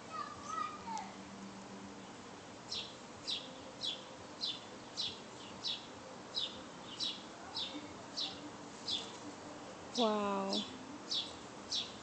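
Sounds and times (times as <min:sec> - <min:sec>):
bird chirping: 0:02.0 - 0:09.2, 0:10.0 - 0:12.0.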